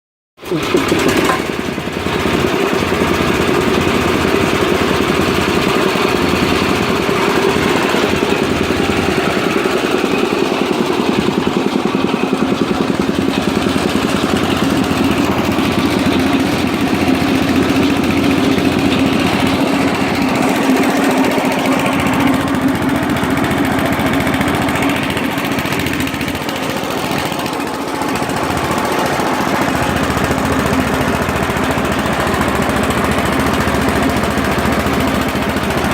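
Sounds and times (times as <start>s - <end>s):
air compressor running: 0.4s - 35.9s.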